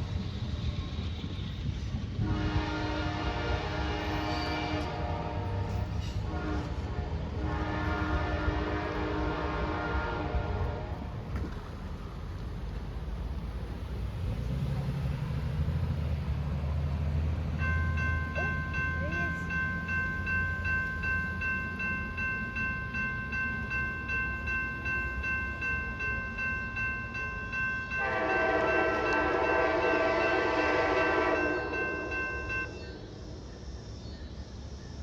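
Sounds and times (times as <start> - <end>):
train rumbling: 0.0 - 35.0
diesel locomotive horn: 2.2 - 11.2, 27.9 - 32.9
pulsing high ringing: 17.6 - 33.3.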